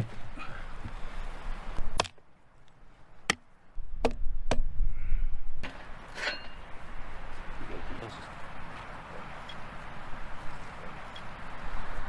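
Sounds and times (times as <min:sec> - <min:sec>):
blade chopping blows: 0:01.8 - 0:02.3.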